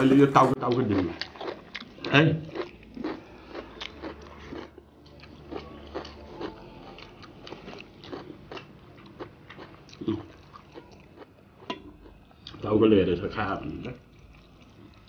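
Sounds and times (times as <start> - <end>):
chewing and lip smacks: 0.6 - 12.6.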